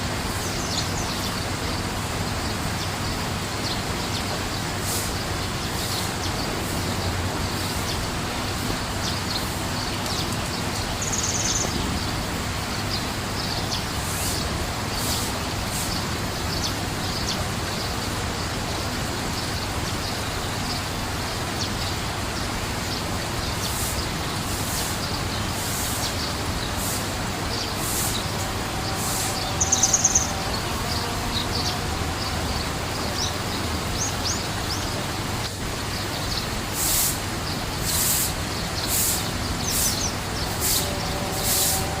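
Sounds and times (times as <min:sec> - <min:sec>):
small birds chirping: 0:00.0 - 0:42.0
steady rushing noise: 0:00.0 - 0:42.0
bird trill: 0:27.6 - 0:33.4.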